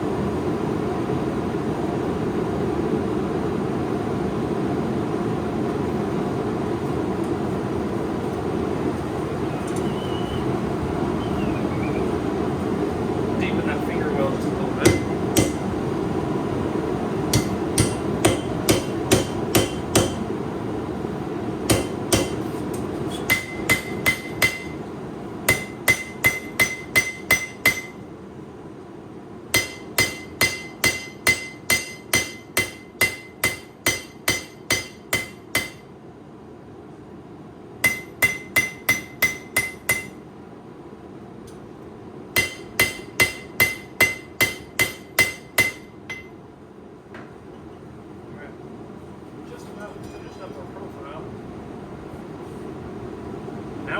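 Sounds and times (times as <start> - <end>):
hammer ringing on anvil: 14.8 - 15.6, 17.3 - 20.2, 21.7 - 22.4, 23.3 - 24.8, 25.5 - 28.0, 29.6 - 35.8, 37.8 - 40.2, 42.4 - 46.4.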